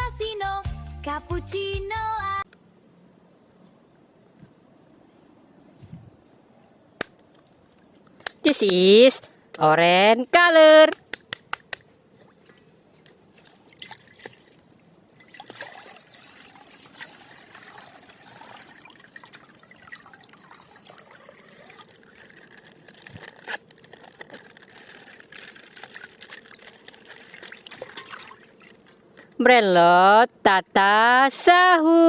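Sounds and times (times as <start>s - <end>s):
plastic packaging crinkling: 20.2s - 29.0s.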